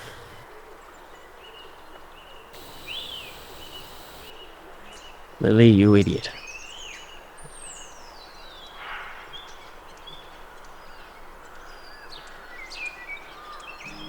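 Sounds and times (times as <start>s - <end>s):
birds chirping and whistling: 2.6s - 4.3s
faint outdoor hiss: 2.6s - 4.3s.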